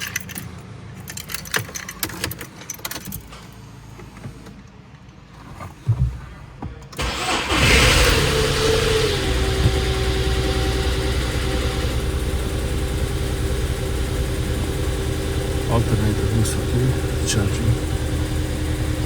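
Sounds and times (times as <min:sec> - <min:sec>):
car engine starting and idling: 0:07.0 - 0:19.0.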